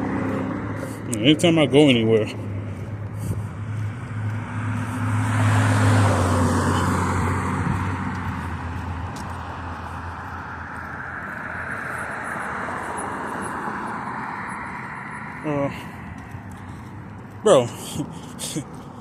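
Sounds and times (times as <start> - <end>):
vehicle engine passing by: 0.0 - 19.0
tyres and traffic hiss: 14.8 - 19.0.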